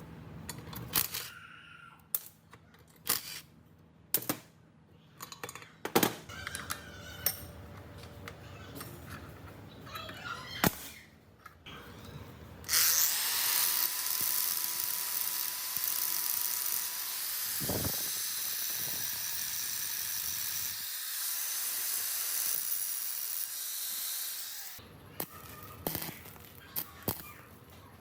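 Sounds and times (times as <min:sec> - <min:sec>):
high-speed power tool running: 0:12.7 - 0:24.8.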